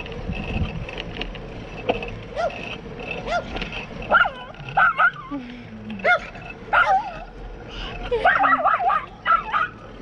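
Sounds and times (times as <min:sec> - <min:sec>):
riding noise: 0:00.0 - 0:10.0
small dog barking: 0:04.1 - 0:05.2, 0:06.0 - 0:07.2, 0:08.2 - 0:09.8.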